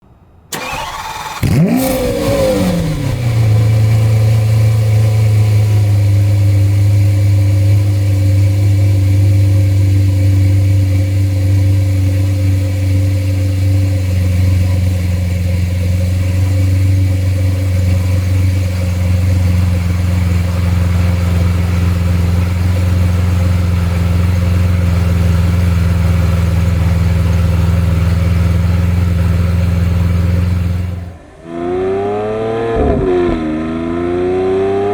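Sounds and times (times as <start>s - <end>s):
car engine cold start and idle: 0.5s - 34.9s.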